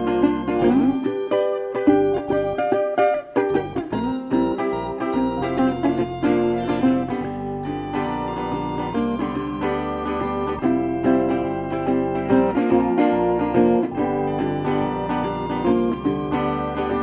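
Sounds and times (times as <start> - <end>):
strummed acoustic guitar: 0.0 - 17.0
bass line: 0.2 - 1.1, 3.6 - 17.0
steady beat: 1.9 - 10.6.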